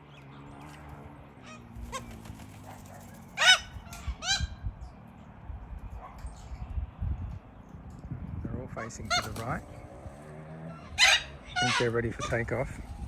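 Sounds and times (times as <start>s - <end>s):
corellas calling: 0.1s - 5.1s, 8.6s - 13.0s.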